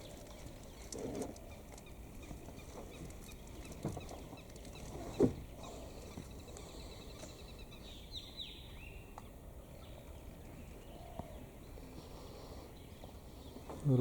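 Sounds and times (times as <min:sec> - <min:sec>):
background hiss: 0:00.0 - 0:14.0
bird twittering chirp: 0:00.0 - 0:14.0.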